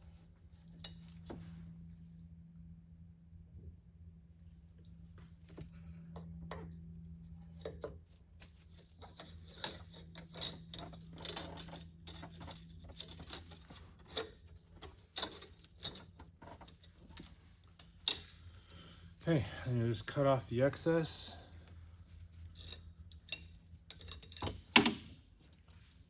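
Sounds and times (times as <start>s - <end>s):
steady low hum: 0.0s - 26.0s
metallic clicks and scrapes of wire: 5.5s - 18.8s, 22.0s - 26.0s.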